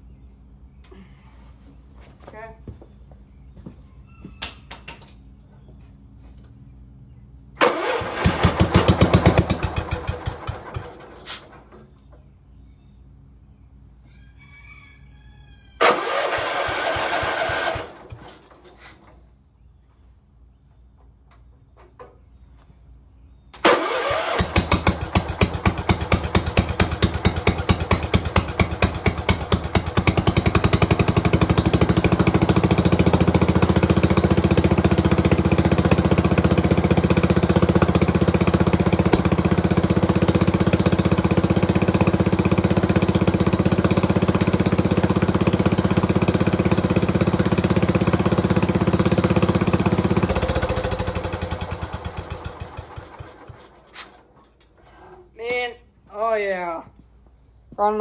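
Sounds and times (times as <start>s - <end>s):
single-cylinder engine running: 7.5s - 12.1s, 15.8s - 19.2s, 23.5s - 55.1s
engine cranking: 7.6s - 11.9s, 15.8s - 19.2s, 23.5s - 55.3s.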